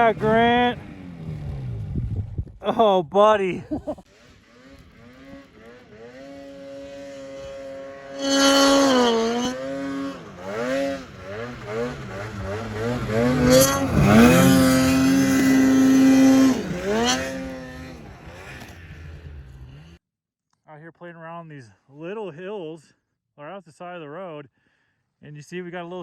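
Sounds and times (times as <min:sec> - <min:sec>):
snowmobile engine revving: 0:00.0 - 0:03.0, 0:03.6 - 0:20.0.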